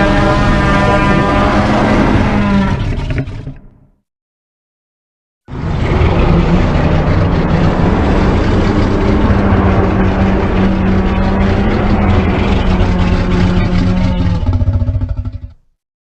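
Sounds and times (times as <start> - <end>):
monster sound effect rumble: 0.0 - 3.7, 5.5 - 15.7.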